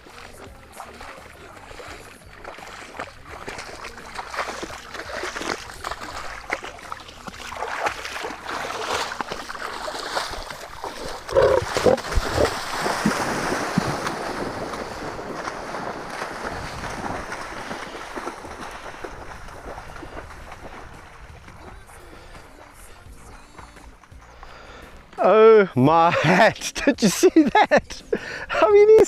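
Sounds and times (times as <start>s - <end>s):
water splashing: 0.0s - 29.0s
lions snarling: 11.0s - 12.8s.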